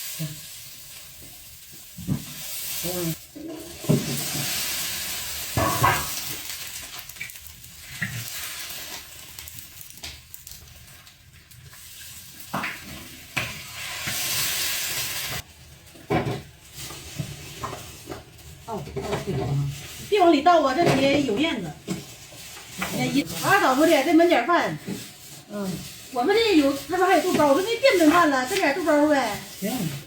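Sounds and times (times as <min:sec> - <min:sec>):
pot sizzling and hissing steam: 0:00.0 - 0:30.0
utensils knocking against a pot: 0:05.6 - 0:06.3.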